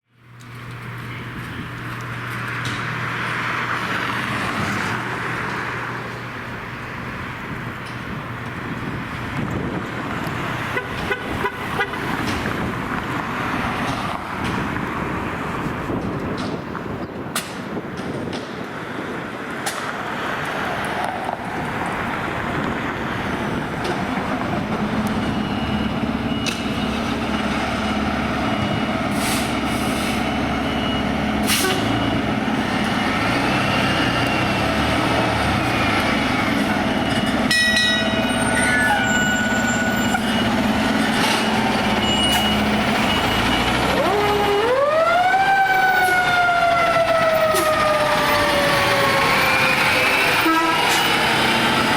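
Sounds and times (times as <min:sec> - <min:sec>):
heavy diesel engine running: 0:21.9 - 0:44.7
siren winding up and falling: 0:41.9 - 0:51.1.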